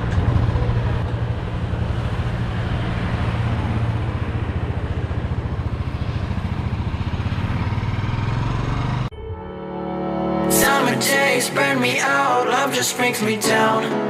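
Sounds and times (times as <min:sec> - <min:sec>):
motorcycle engine running: 0:00.0 - 0:09.1
road noise: 0:00.0 - 0:13.7.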